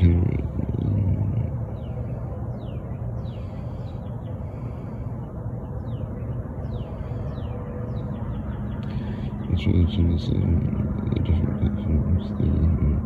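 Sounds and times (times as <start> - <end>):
birds calling: 0.0 - 13.0
steady low rumble: 0.0 - 13.0.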